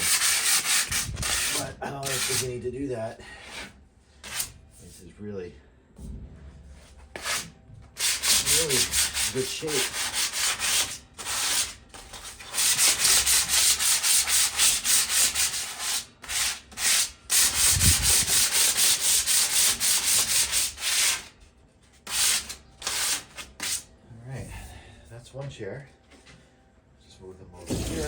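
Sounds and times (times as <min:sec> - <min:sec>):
sandpaper rubbing on metal: 0:00.0 - 0:02.5, 0:07.2 - 0:21.3, 0:22.0 - 0:23.9, 0:27.7 - 0:28.0.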